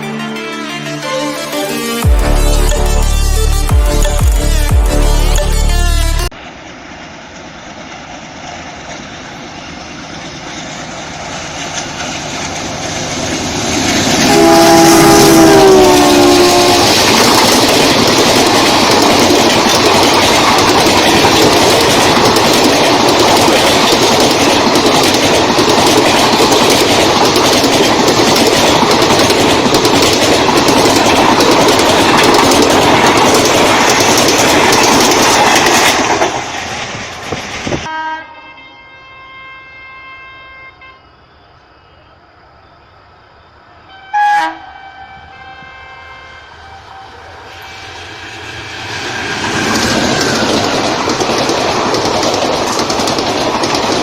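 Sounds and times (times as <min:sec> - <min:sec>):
train passing at speed: 0:03.9 - 0:54.0
train horn blast: 0:14.2 - 0:17.1, 0:37.9 - 0:41.1, 0:43.9 - 0:48.2.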